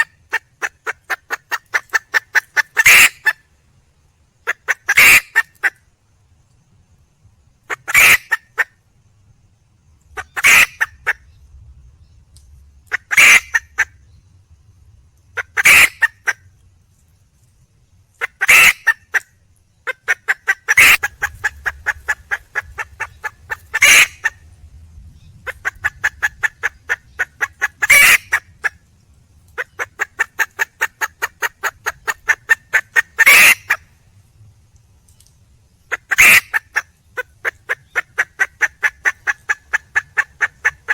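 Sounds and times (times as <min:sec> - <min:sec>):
hen squawking: 0:00.0 - 0:03.3, 0:04.5 - 0:05.5, 0:07.7 - 0:08.6, 0:10.2 - 0:11.2, 0:12.9 - 0:13.9, 0:15.4 - 0:16.4, 0:18.2 - 0:19.0, 0:19.9 - 0:24.4, 0:25.5 - 0:28.8, 0:29.6 - 0:33.8, 0:35.9 - 0:36.8
hen clucking rapidly: 0:00.0 - 0:03.4, 0:04.4 - 0:05.7, 0:07.7 - 0:08.7, 0:10.1 - 0:11.2, 0:12.9 - 0:14.0, 0:15.4 - 0:16.4, 0:18.2 - 0:19.2, 0:19.9 - 0:24.4, 0:25.4 - 0:28.8, 0:29.6 - 0:33.8, 0:35.9 - 0:40.9.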